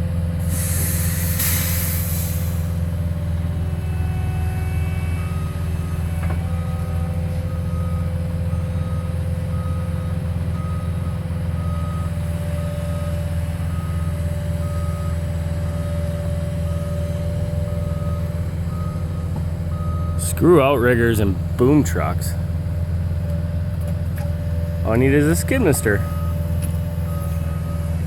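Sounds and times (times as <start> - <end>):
skid steer engine running: 0.0 - 28.0
backup alarm beeping: 5.1 - 16.0, 24.9 - 26.4.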